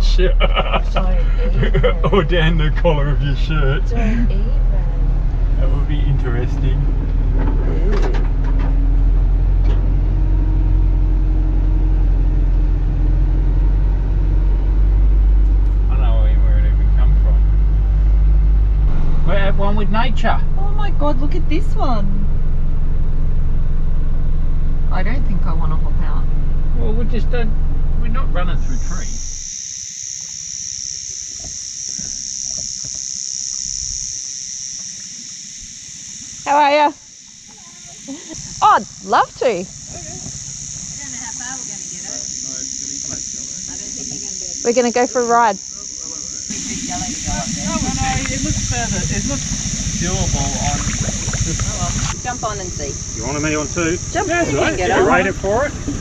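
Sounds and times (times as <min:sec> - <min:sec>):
diesel truck engine from cab: 0:00.0 - 0:29.5, 0:46.4 - 0:56.0
low rumble: 0:00.0 - 0:29.5, 0:35.6 - 0:56.0
high-pitched insect drone: 0:00.1 - 0:06.8, 0:26.8 - 0:56.0.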